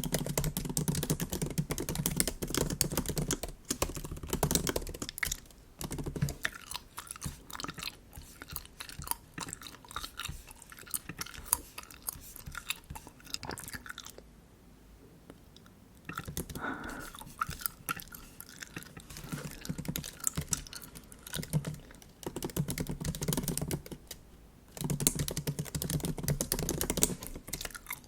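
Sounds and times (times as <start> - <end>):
keyboard typing clicks: 0.0 - 6.4, 21.4 - 24.2, 24.8 - 27.8
bubble gum chewing smacks: 3.9 - 14.3, 15.6 - 24.2.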